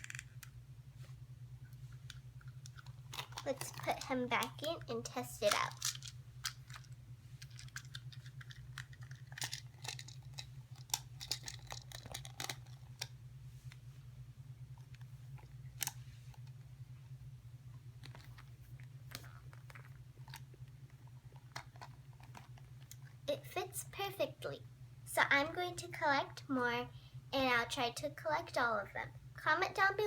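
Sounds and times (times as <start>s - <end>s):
low hum: 0.0s - 23.3s.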